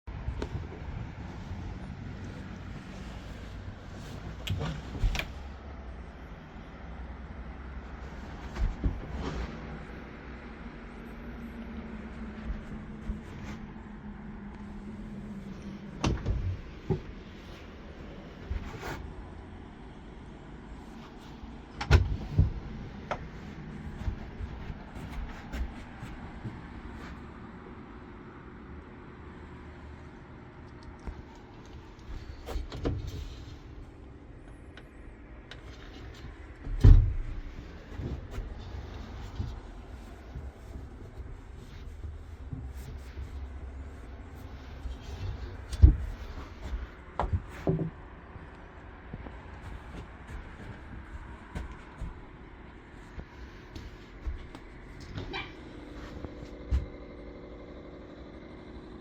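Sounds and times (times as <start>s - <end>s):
low steady rumble: 0.1s - 59.0s
steady low hum: 0.1s - 59.0s
sharp knocks and clunks: 15.9s - 17.3s
knocks and thumps: 15.9s - 17.4s, 45.2s - 48.2s.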